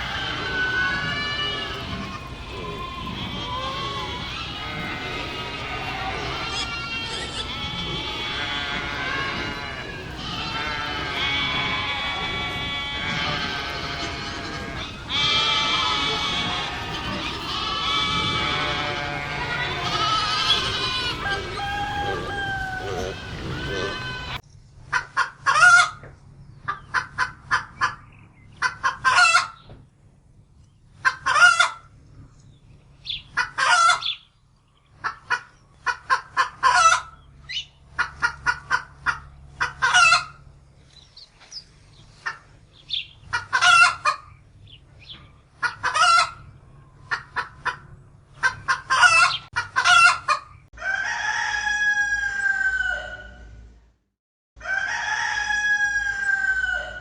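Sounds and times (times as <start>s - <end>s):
chicken sliding pitch call: 0.0s - 24.4s
chicken clucking and calling: 0.0s - 29.8s, 30.9s - 34.3s, 34.9s - 40.6s, 41.4s - 53.7s, 54.6s - 57.0s.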